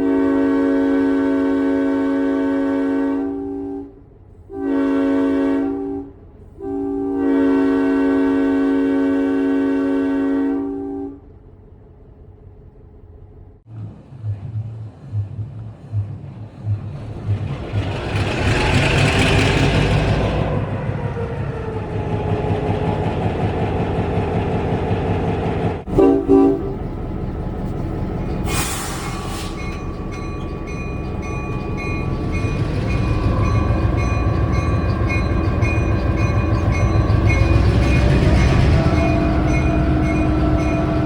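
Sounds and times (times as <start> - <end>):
locomotive horn blast: 0.0 - 11.3, 25.8 - 27.1, 27.7 - 41.0
diesel locomotive engine running: 0.0 - 41.0
air hiss: 28.4 - 29.6.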